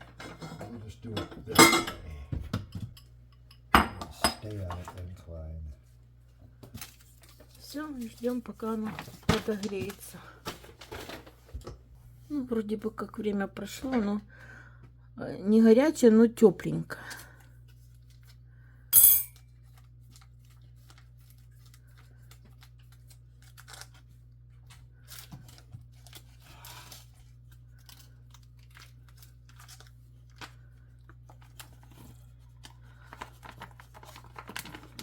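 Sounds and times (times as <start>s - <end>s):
packaging rustling and clicking: 19.7s - 24.1s, 27.7s - 35.0s
food pouch being ripped open: 20.2s - 24.1s.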